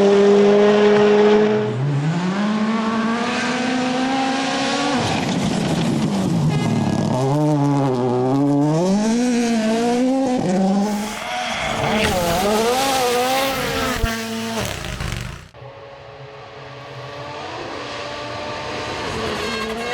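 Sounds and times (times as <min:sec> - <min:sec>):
rally car engine revving: 0:00.0 - 0:19.9.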